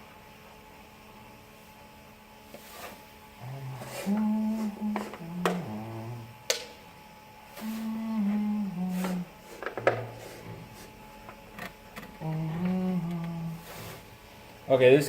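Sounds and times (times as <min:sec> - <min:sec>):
man humming a slow tune: 0:03.4 - 0:06.4, 0:07.5 - 0:10.4, 0:12.0 - 0:14.0.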